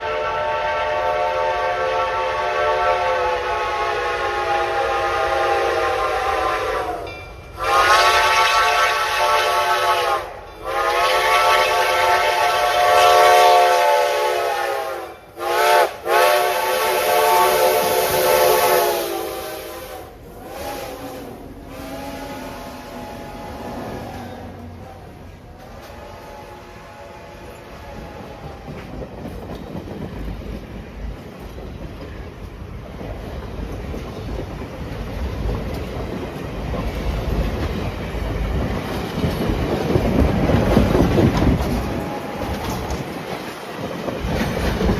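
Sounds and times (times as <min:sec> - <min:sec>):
steam locomotive whistle blasts: 0:00.0 - 0:28.8.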